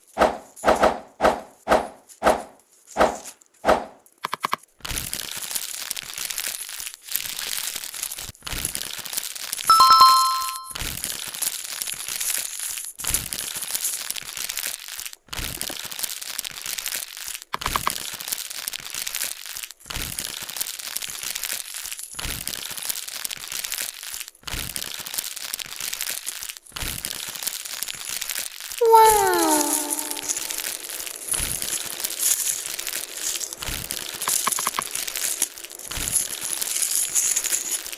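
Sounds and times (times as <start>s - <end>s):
two-note chime: 9.7s - 10.8s
plastic packaging rustling: 30.3s - 37.9s.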